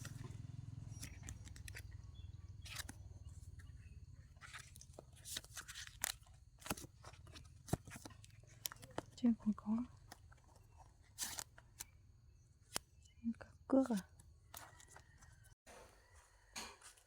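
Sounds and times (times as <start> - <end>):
wallet rustling and clicking: 0.9 - 12.0, 13.9 - 15.6.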